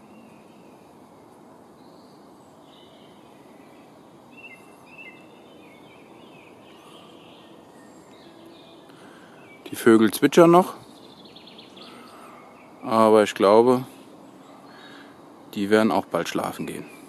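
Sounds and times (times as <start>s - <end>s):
low background hiss: 0.0s - 17.0s
songbirds chirping faintly: 0.0s - 17.0s.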